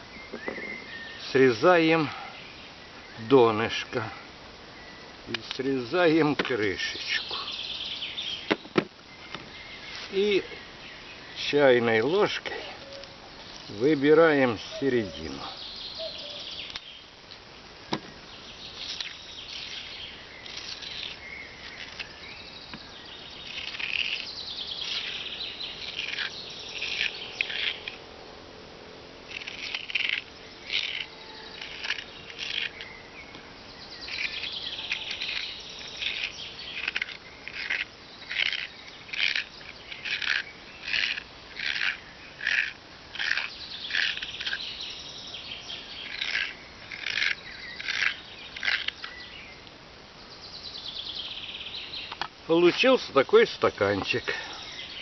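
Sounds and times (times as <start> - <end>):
teaspoon scraping raw potato: 23.5 - 28.0, 29.3 - 32.8.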